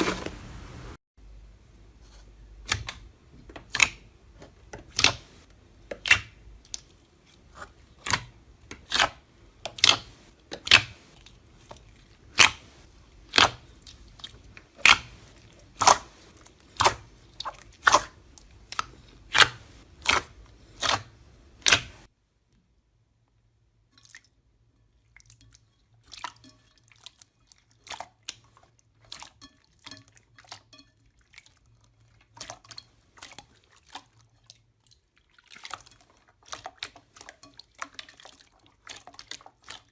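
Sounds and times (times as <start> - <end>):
slime crunching: 4.9 - 22.1.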